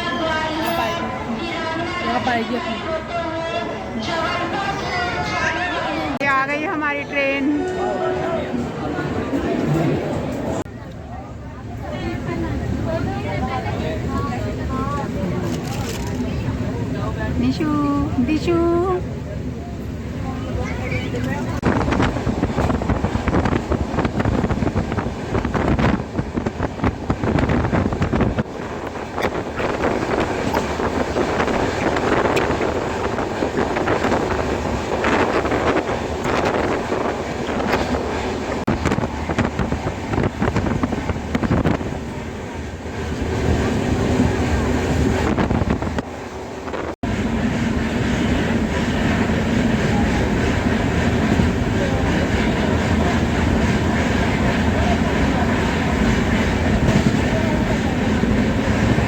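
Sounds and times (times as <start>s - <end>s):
train rumble and rattling: 0.0s - 59.0s
wind buffeting microphone: 21.3s - 59.0s.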